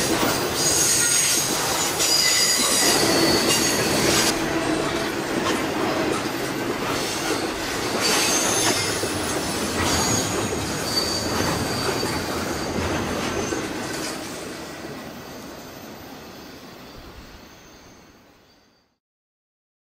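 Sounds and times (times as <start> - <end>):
freight train cars rolling: 0.0 - 18.7
wheel squeals: 0.2 - 4.8, 6.1 - 14.2.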